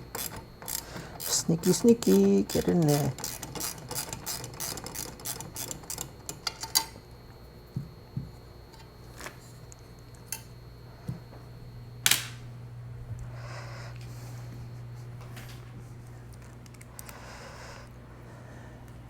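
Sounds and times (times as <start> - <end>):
low steady hum: 0.0 - 19.0
ratcheting hand tool clicking: 0.1 - 6.9.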